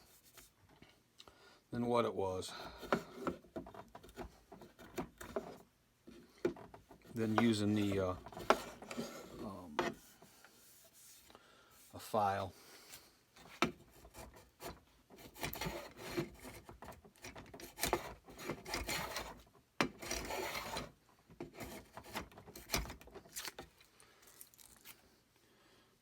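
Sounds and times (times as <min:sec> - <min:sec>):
file scraping wood: 0:02.6 - 0:11.9, 0:13.4 - 0:23.7.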